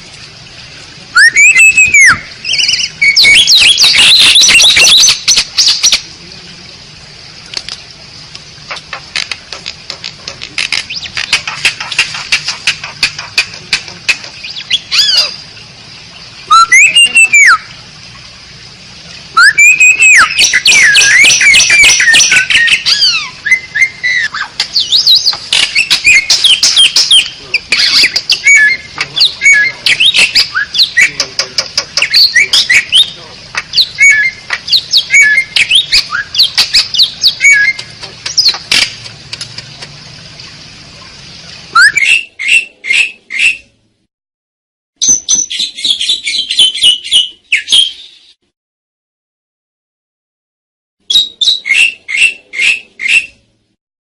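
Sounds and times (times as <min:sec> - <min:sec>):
starling singing whistles and chatters: 0:01.2 - 0:06.0, 0:14.4 - 0:15.4, 0:16.4 - 0:17.7, 0:19.3 - 0:38.6, 0:41.7 - 0:43.7, 0:45.0 - 0:48.3, 0:51.1 - 0:53.4.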